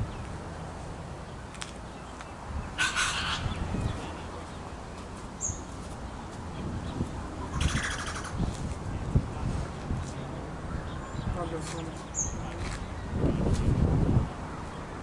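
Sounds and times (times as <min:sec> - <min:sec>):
bird giving harsh calls: 0:02.8 - 0:03.7, 0:07.5 - 0:08.4.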